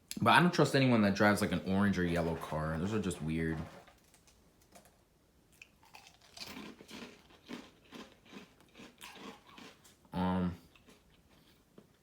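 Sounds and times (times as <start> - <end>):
person chewing crunchy cereal: 5.5 - 12.0.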